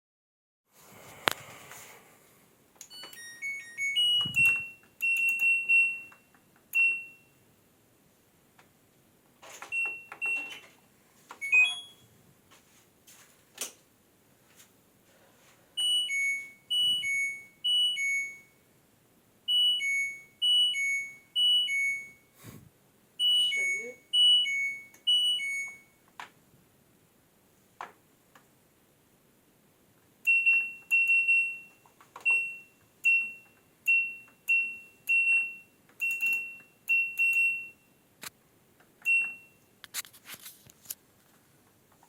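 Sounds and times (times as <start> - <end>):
short beeps with clicks: 11.4 - 12.0, 23.2 - 26.0, 30.3 - 37.9, 39.0 - 39.6.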